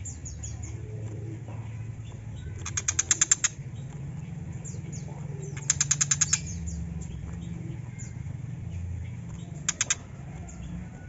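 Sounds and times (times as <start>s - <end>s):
bird harsh rattling chatter: 2.4s - 3.8s, 5.5s - 7.2s, 9.4s - 10.3s.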